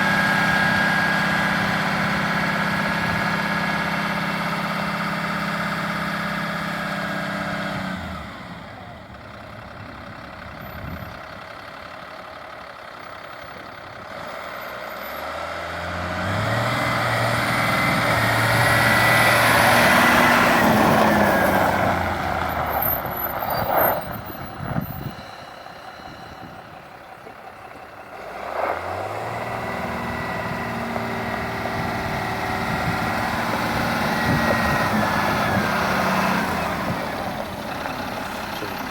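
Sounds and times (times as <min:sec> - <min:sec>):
truck diesel engine running: 0:00.0 - 0:38.9
rising engine whine: 0:15.2 - 0:38.9.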